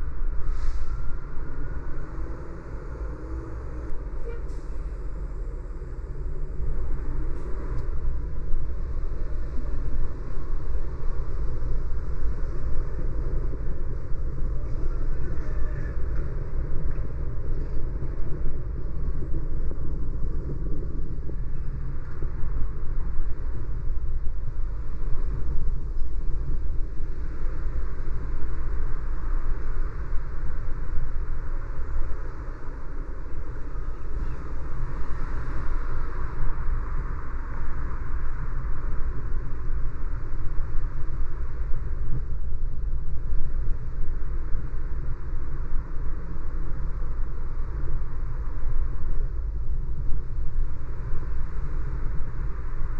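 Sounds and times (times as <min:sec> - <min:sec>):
car road and engine rumble: 0:00.0 - 0:52.9
tyre and road hiss: 0:00.3 - 0:01.3.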